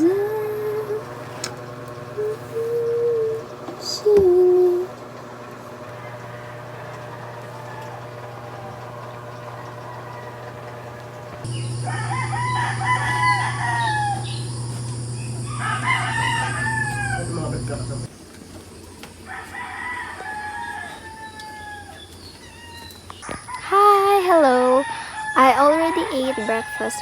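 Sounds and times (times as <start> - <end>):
steady hum: 0.0 - 18.1
rooster crowing: 5.9 - 18.1, 19.2 - 27.0.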